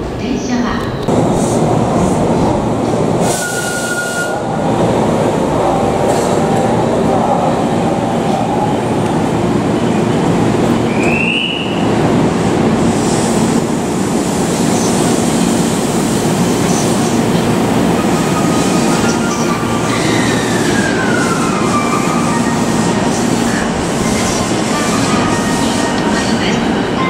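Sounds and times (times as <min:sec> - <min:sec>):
rail noise: 0:00.0 - 0:27.0
high train squeal: 0:03.2 - 0:04.4, 0:18.0 - 0:27.0.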